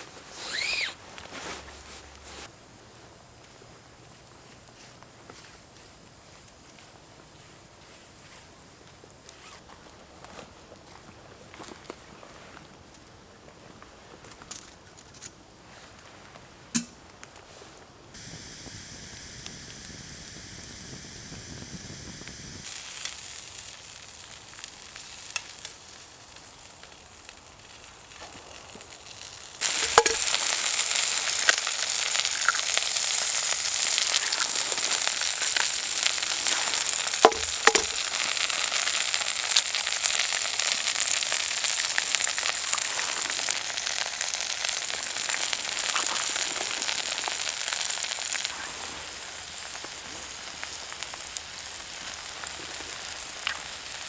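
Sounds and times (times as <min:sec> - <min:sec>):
sharp pops: 0:16.8 - 0:17.0, 0:29.6 - 0:32.9, 0:35.3 - 0:38.1
food sizzling in a pan: 0:18.2 - 0:54.0.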